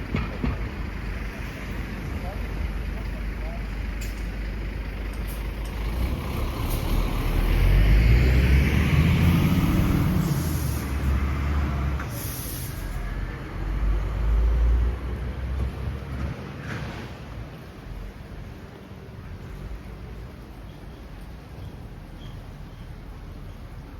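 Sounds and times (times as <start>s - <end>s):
heavy vehicle engine rumbling: 0.0s - 23.9s
short air hisses: 10.2s - 11.1s, 12.0s - 13.0s.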